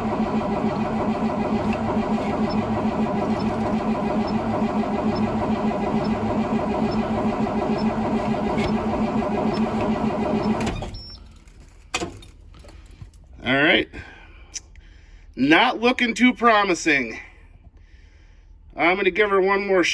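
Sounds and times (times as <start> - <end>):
diesel engine cranking: 0.0 - 11.1.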